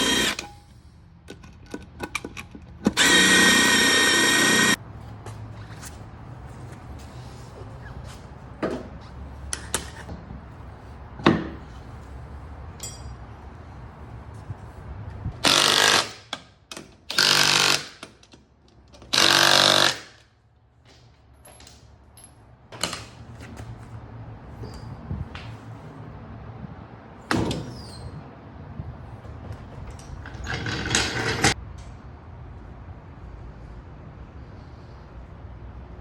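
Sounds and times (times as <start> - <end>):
power tool running: 0.0 - 0.5, 2.9 - 4.8, 15.4 - 16.2, 17.1 - 18.0, 19.1 - 20.1.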